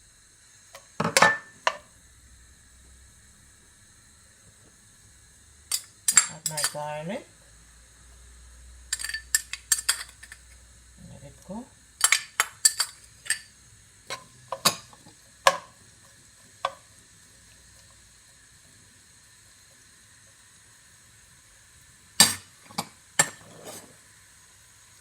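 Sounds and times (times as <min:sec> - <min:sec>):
onions frying in oil: 0:00.0 - 0:25.0
utensil knocking and scraping wok: 0:00.7 - 0:01.9, 0:08.9 - 0:10.6, 0:12.0 - 0:18.1, 0:22.2 - 0:24.0.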